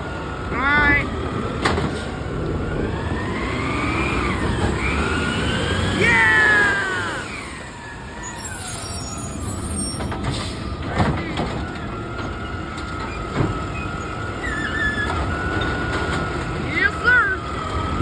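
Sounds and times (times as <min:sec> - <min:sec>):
garbage truck rumbling: 0:00.0 - 0:18.0
whining tone rising and falling: 0:02.8 - 0:09.4
loud falling squeal: 0:03.9 - 0:10.7.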